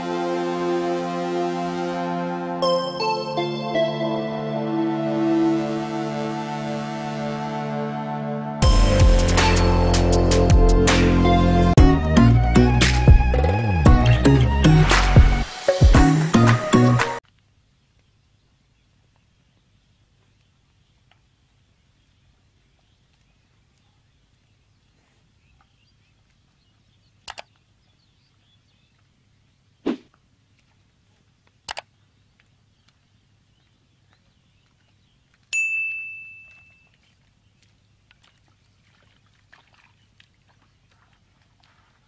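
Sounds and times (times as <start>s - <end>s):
faint background noise: 17.2s - 42.0s
bright bell-like ding: 35.6s - 36.8s.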